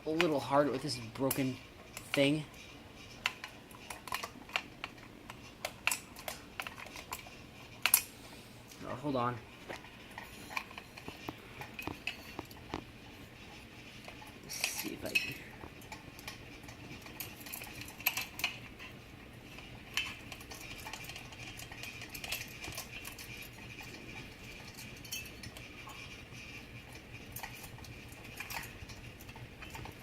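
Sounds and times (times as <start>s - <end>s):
fan motor humming: 0.0s - 30.0s
metal pull chains clinking: 14.0s - 18.7s.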